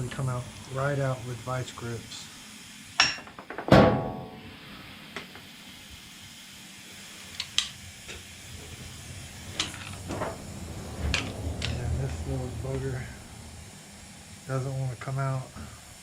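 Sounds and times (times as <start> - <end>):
steady shop hiss: 0.0 - 16.0
metal clang: 3.0 - 4.5
hand tools clinking: 9.5 - 10.3.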